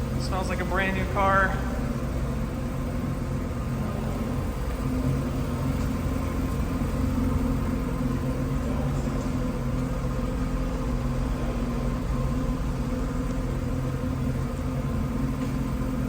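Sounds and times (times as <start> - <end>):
rotary engine idling: 0.0 - 16.0.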